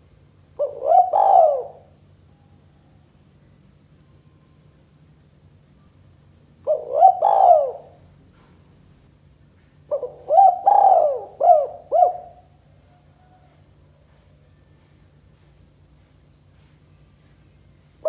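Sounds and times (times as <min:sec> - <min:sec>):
dove cooing: 0:00.6 - 0:01.9, 0:06.6 - 0:08.0, 0:09.9 - 0:12.5.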